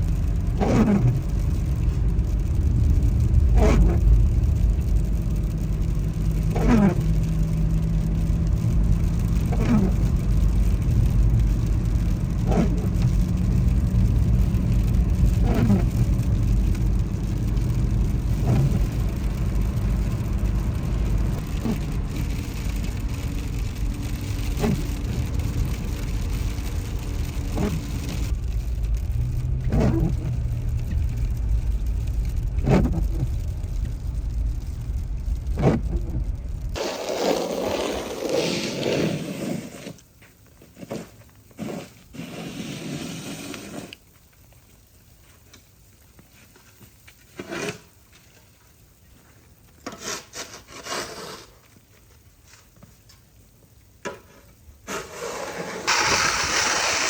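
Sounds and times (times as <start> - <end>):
windshield wipers sweeping: 0.0 - 38.8, 54.9 - 57.0
car road and engine rumble: 0.0 - 48.1, 51.4 - 57.0.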